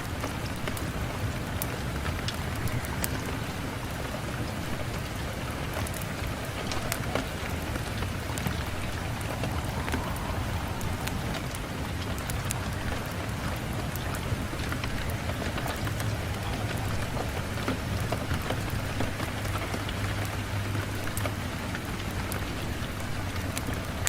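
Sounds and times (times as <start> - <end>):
rain on a window: 0.0 - 24.0
low rumble: 7.9 - 13.8.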